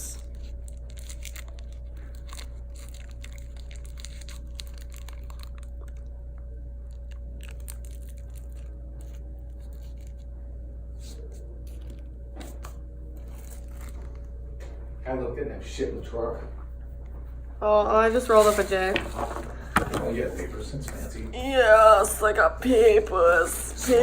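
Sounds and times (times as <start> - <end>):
low electrical hum: 0.0 - 24.0
crackling crinkling handling clicks: 0.8 - 10.2.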